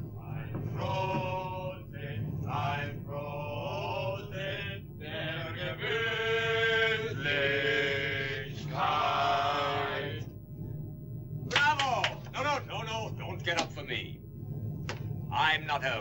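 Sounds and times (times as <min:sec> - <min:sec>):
men singing in unison: 0:00.1 - 0:10.3.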